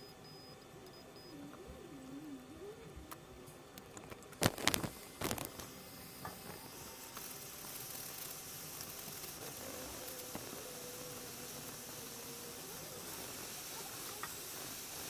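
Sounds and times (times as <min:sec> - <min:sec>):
hot air station hissing: 0:01.1 - 0:15.0.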